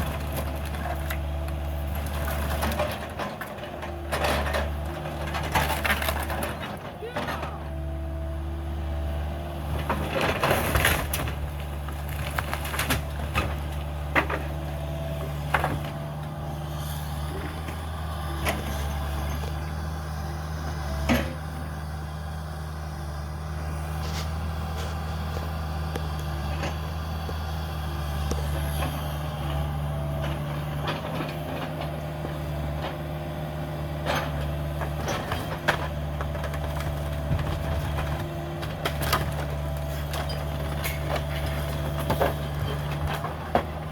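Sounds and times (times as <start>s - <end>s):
timbers cracking and breaking: 0.0s - 6.8s, 9.8s - 16.0s, 34.8s - 43.7s
excavator diesel engine running: 0.0s - 43.9s.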